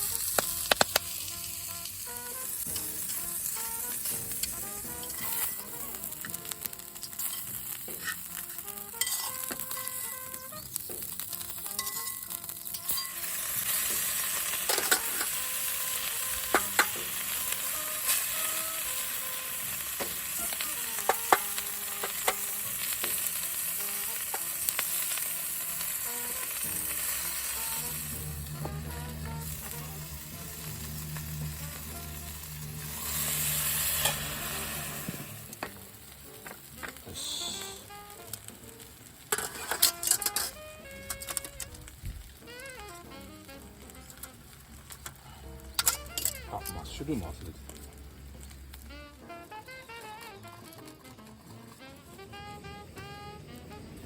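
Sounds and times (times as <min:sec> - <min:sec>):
food sizzling in a frying pan: 0:00.0 - 0:54.0
fat spattering pops: 0:00.3 - 0:01.1.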